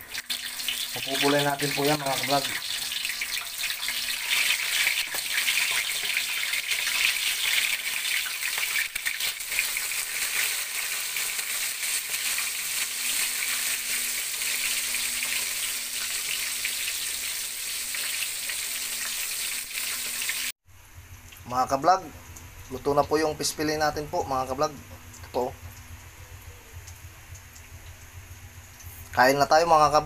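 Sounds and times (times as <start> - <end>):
fish frying in hot oil: 0.0 - 21.6.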